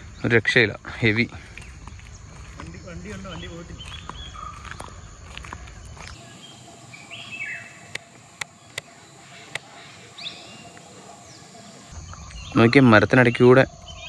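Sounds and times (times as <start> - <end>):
bird chirps: 1.5 - 14.0
sharp clicks: 7.9 - 8.9.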